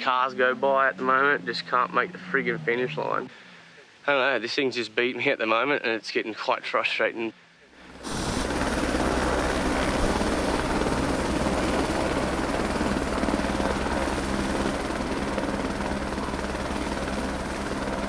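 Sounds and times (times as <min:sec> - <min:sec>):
engine droning: 0:00.0 - 0:03.6, 0:07.8 - 0:18.0.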